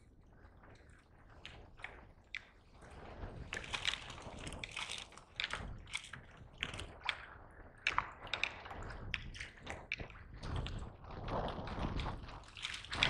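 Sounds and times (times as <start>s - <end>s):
water splashing against kayak: 3.5s - 6.1s.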